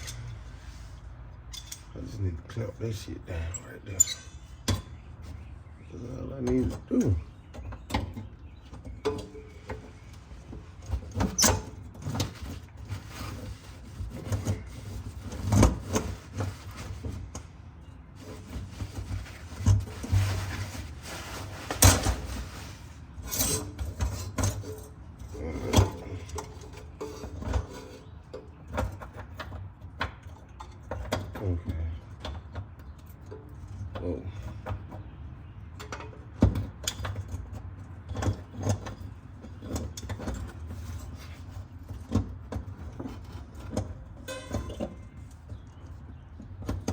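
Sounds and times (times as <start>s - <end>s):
metal tools clicking and clinking: 0.0s - 0.4s, 1.5s - 2.0s, 3.5s - 4.9s, 44.2s - 45.1s
rustling noise: 9.8s - 24.2s.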